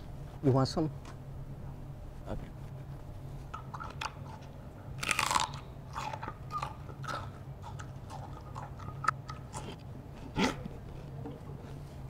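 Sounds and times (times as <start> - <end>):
person chewing crunchy food: 3.5 - 12.0.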